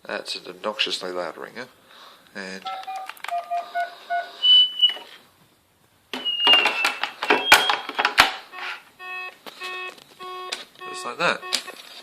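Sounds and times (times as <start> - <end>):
telephone ringing: 2.6 - 5.0, 6.2 - 12.0.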